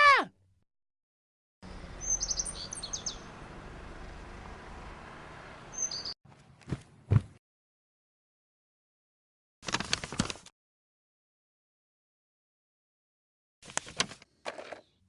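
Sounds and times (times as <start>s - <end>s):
birds chirping: 1.6s - 3.5s, 5.7s - 6.2s.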